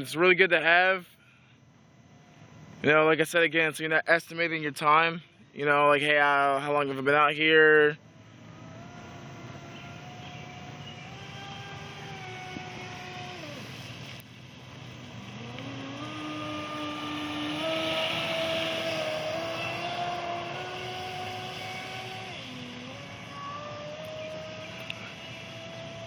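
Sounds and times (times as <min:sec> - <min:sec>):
electric motor whining: 0:05.7 - 0:26.0
water rushing hiss: 0:14.8 - 0:26.0.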